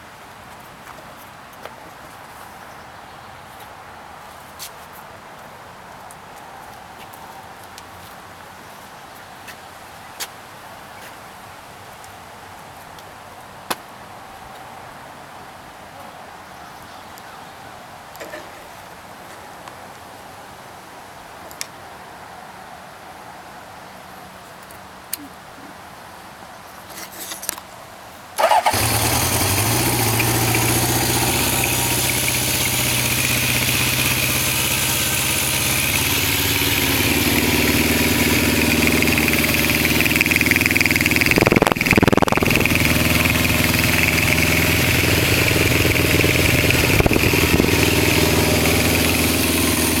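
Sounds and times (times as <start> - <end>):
motorcycle engine idling: 28.4 - 50.0.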